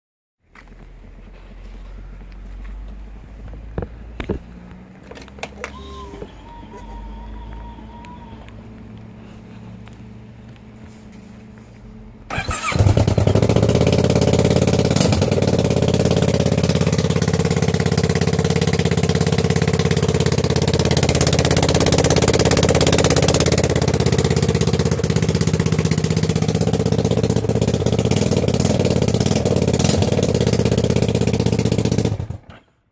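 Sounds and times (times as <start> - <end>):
motorcycle engine starting and running: 12.2 - 32.8.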